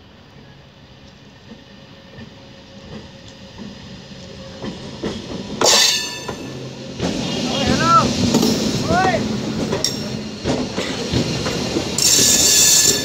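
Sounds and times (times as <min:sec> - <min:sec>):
train passing: 0:00.0 - 0:13.0
wheels clacking over rail joints: 0:01.4 - 0:13.0.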